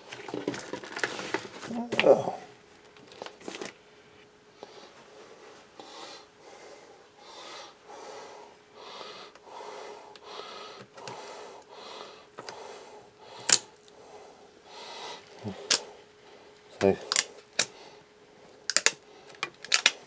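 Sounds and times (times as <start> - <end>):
rapid rhythmic breathing: 4.5 - 19.4.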